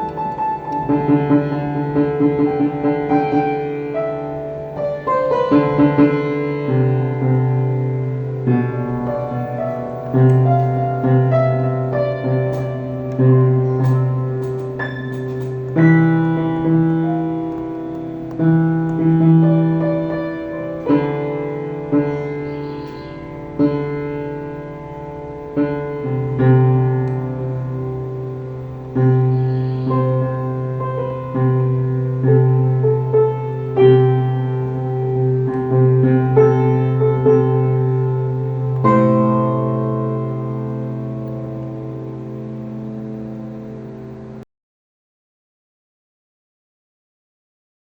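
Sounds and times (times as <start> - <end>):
slow piano chords: 0.0 - 44.5.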